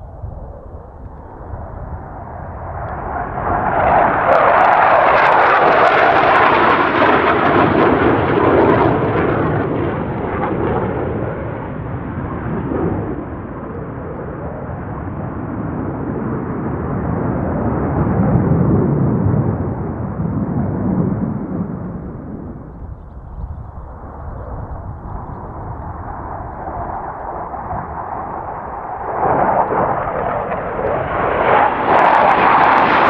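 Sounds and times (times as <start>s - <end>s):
jet aircraft flying past: 0.0s - 33.0s
deep rumble: 16.6s - 32.1s.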